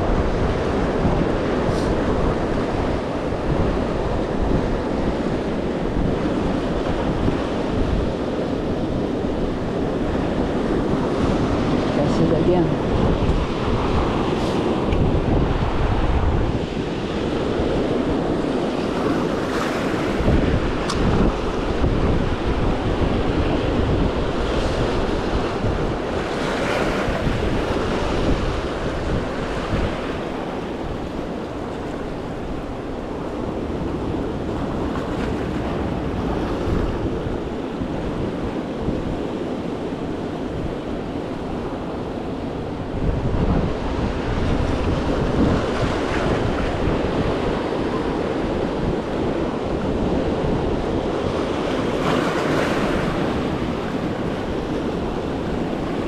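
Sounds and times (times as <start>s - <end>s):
ocean surf washing in: 0.0s - 56.0s
wind buffeting microphone: 0.0s - 56.0s.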